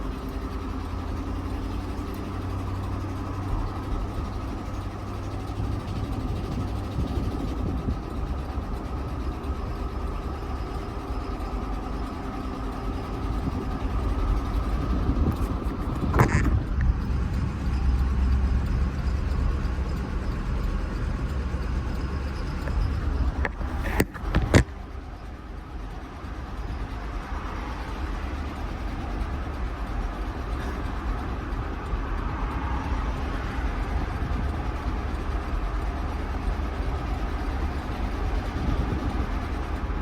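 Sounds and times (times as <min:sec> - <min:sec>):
engine rumbling with rod knock: 0:00.0 - 0:25.2.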